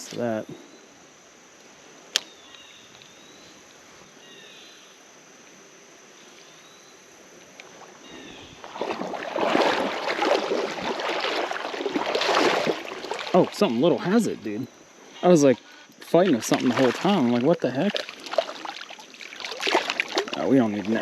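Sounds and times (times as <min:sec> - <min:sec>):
faint bird chirps: 0:02.2 - 0:05.0, 0:08.0 - 0:08.6
water splashing and sloshing: 0:07.4 - 0:21.0.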